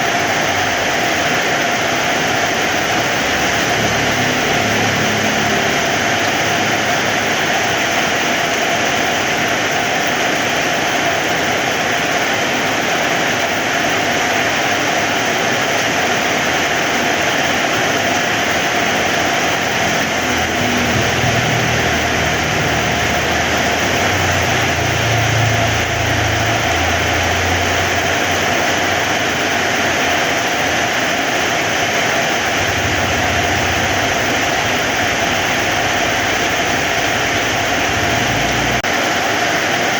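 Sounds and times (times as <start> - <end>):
heavy rain falling: 0.0 - 39.9
low rumble: 19.5 - 29.0, 32.4 - 38.9.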